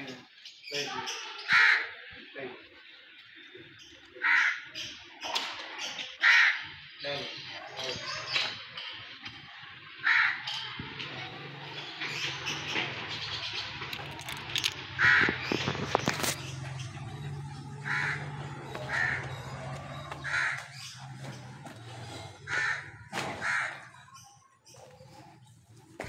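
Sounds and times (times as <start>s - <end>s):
bird calling: 11.5s - 25.2s.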